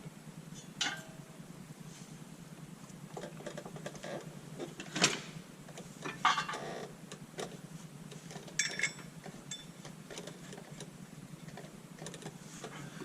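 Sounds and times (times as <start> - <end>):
ringing metal clink: 8.6 - 9.7.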